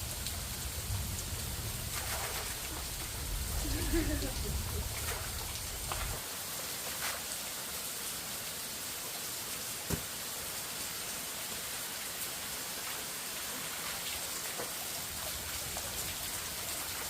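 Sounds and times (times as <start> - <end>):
rain falling: 0.0 - 17.0
dull knock: 9.9 - 10.1.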